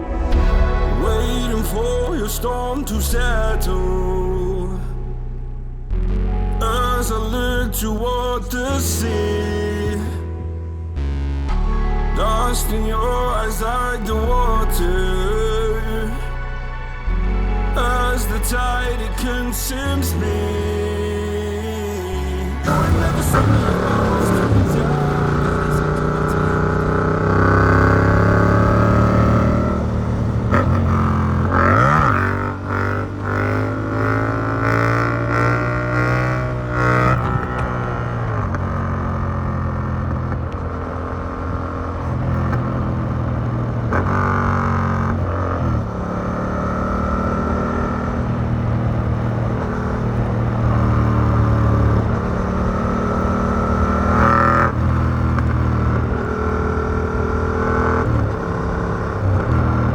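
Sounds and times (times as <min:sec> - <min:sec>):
motorcycle engine revving: 0:22.2 - 0:59.9.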